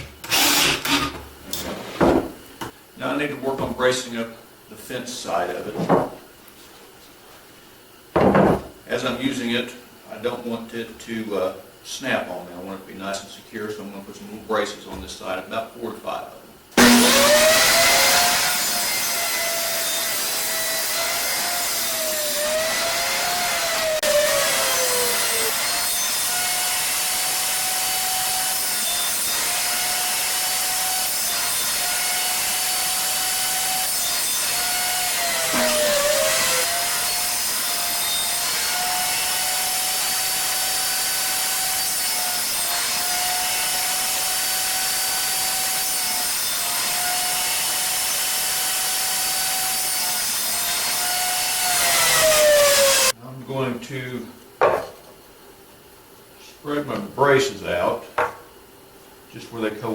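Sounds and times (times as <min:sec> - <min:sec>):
electric saw cutting wood: 0:00.0 - 0:01.2, 0:16.8 - 0:53.2.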